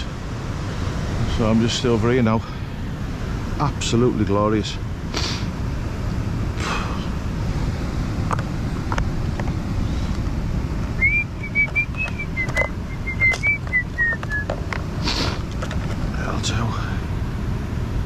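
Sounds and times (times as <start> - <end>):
person whistling a tune: 11.0 - 14.5.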